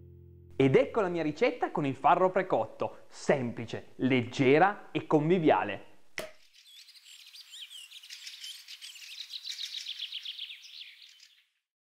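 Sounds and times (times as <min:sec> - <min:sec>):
birds chirping and trilling: 0:06.4 - 0:11.6.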